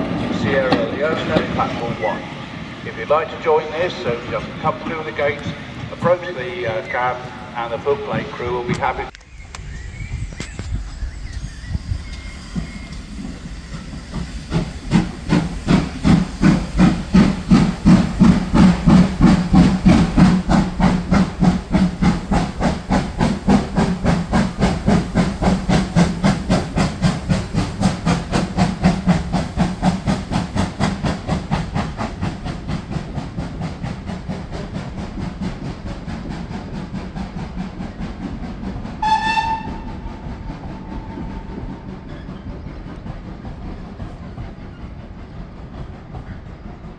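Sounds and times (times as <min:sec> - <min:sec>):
steam locomotive exhaust beats: 0:00.0 - 0:46.9
steam whistle blast: 0:39.0 - 0:41.3.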